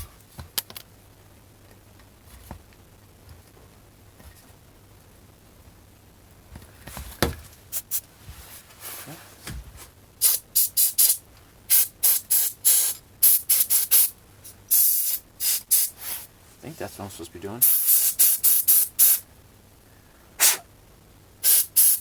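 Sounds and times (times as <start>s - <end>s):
compressed air hissing bursts: 7.7s - 8.0s, 10.2s - 16.3s, 17.6s - 19.2s, 20.4s - 20.6s, 21.4s - 22.0s
person speaking: 16.6s - 17.9s.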